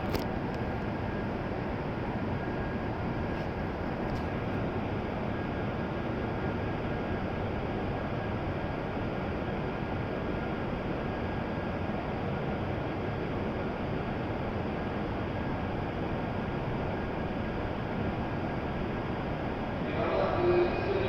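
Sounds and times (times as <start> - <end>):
faint high whine: 16.7 - 21.0.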